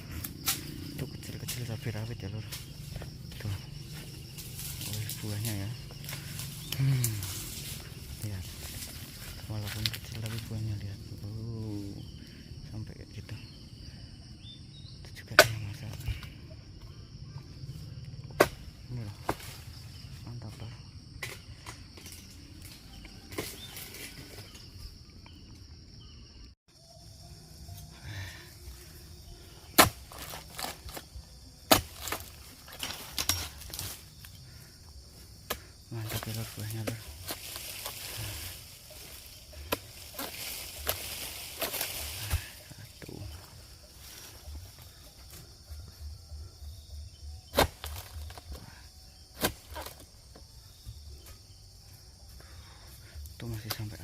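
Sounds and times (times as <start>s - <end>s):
high insect drone: 0.0s - 54.0s
blade chopping into fronds: 18.3s - 19.7s, 29.7s - 34.4s, 35.4s - 42.7s, 47.5s - 48.6s, 49.3s - 50.1s.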